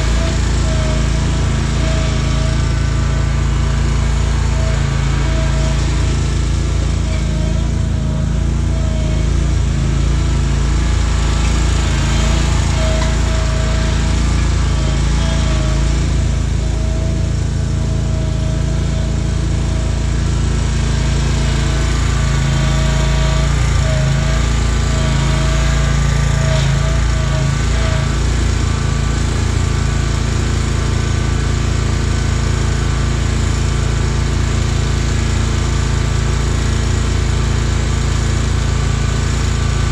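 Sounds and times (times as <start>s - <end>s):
wavering whine: 0.0s - 29.5s
riding mower engine running: 0.0s - 39.9s.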